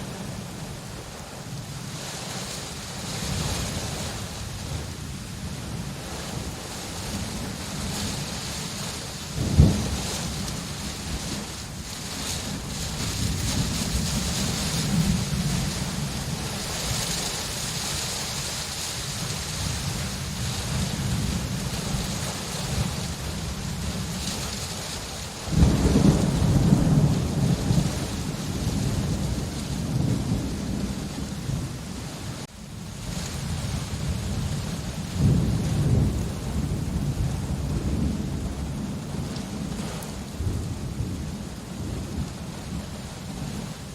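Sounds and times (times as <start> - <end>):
steady rain: 0.0 - 43.9
rolling thunder: 3.1 - 18.5, 25.4 - 43.7
loud thunder crack: 9.4 - 10.3, 25.5 - 31.7.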